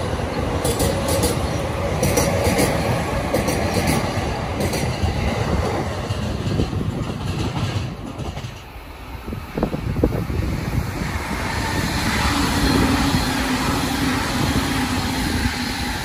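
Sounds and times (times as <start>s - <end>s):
wheels clicking over rail joints: 0.0s - 9.0s
electric train rumbling past: 0.0s - 16.0s.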